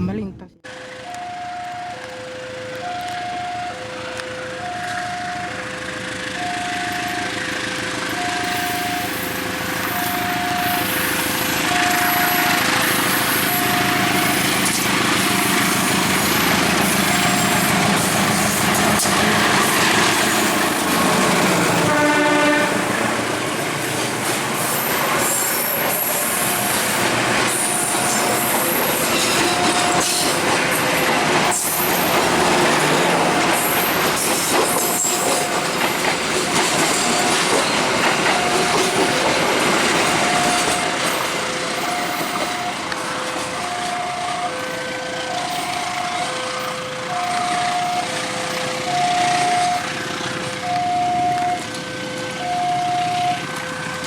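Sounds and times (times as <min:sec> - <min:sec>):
two-tone crossing alarm: 0:00.6 - 0:54.0
train wheels rumbling on rails: 0:00.7 - 0:54.0
train horn blast: 0:21.6 - 0:23.4.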